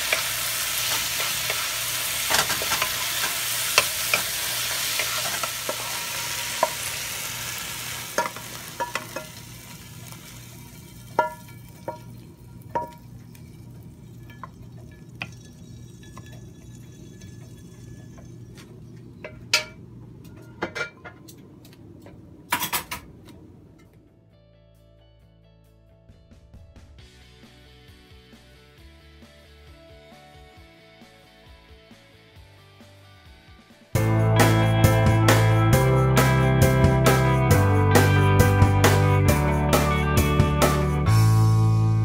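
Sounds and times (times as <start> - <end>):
food sizzling in a wok: 0.0 - 18.6
spatula knocking against pan: 11.2 - 12.1, 12.7 - 13.0.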